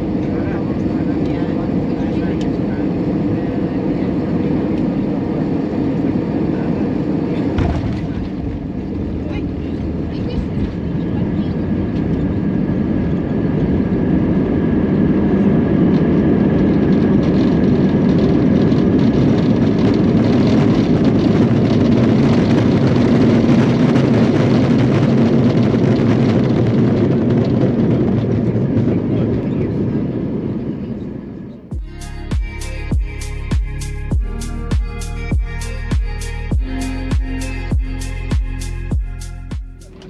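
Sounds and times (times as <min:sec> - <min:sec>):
airplane cabin engine rush: 0:00.0 - 0:31.8.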